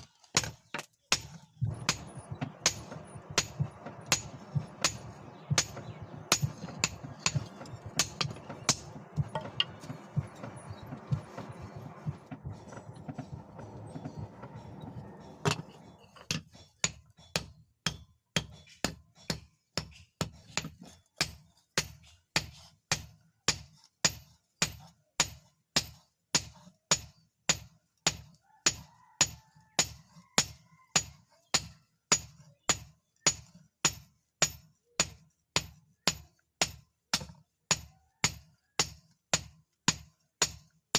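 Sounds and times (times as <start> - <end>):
forging hammer striking steel: 0.4 - 20.0
low rumble: 1.6 - 16.2.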